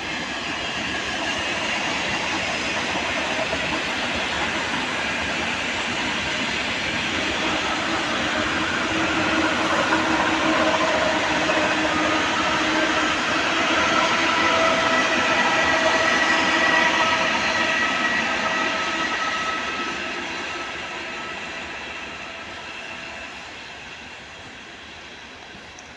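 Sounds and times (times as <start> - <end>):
electric train running on track: 0.0 - 25.9
rail noise: 0.0 - 25.9.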